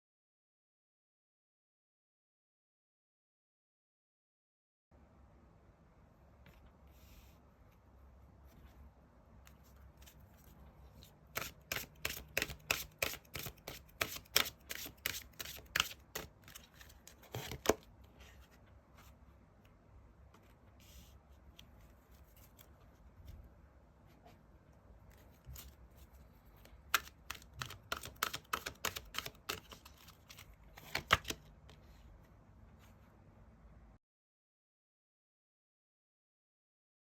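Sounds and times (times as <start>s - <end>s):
cards rustling: 9.5s - 18.4s, 25.1s - 31.5s
cards snapping: 11.4s - 16.3s, 26.8s - 31.4s.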